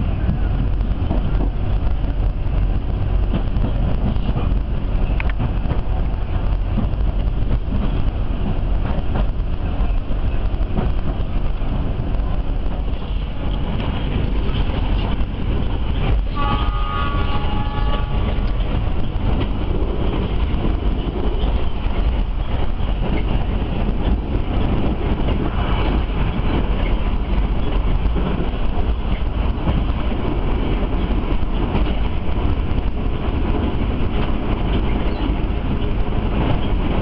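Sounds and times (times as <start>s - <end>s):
train rumble inside coach: 0.0s - 37.0s
train horn: 16.3s - 18.6s.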